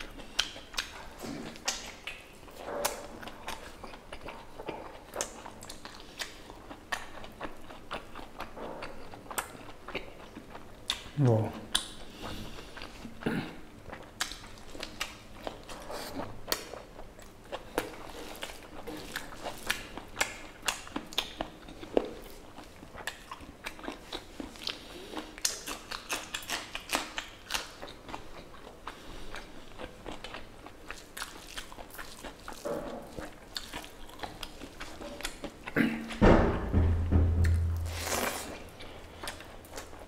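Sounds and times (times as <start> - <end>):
wet chewing mouth smacks: 8.8 - 13.2.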